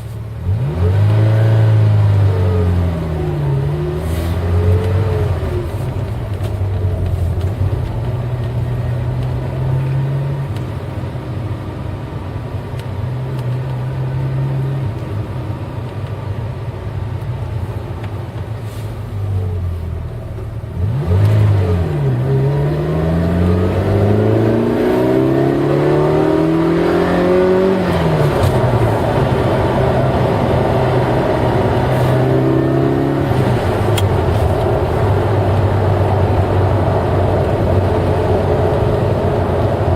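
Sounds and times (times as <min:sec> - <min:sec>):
car engine revving: 0:00.4 - 0:10.9, 0:18.7 - 0:39.9.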